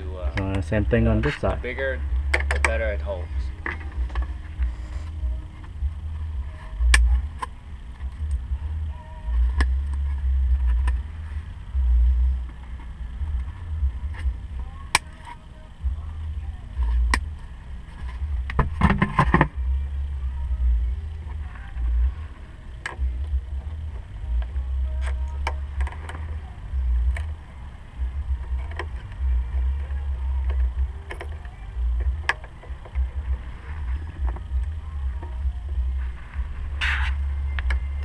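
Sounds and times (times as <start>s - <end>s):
low rumble on microphone: 0.0s - 38.0s.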